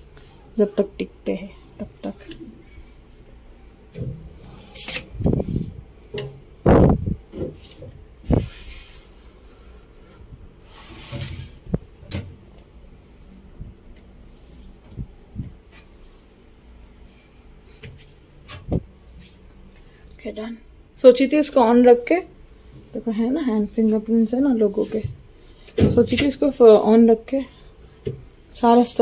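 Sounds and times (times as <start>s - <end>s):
rubbing and wiping surfaces: 6.7s - 19.6s, 22.7s - 25.4s, 27.8s - 29.0s.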